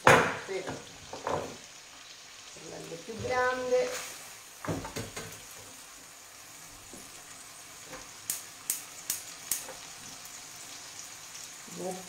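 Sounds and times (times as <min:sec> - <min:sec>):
food sizzling in a pan: 0:00.0 - 0:12.0
gas hob igniter clicking: 0:08.2 - 0:09.8.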